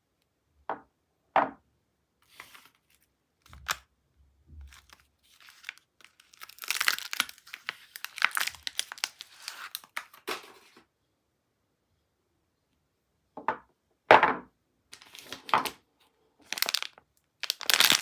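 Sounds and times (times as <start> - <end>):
soap wrapper crinkling and ripping: 2.3 - 3.8, 4.6 - 10.4, 14.9 - 15.8, 16.4 - 18.0.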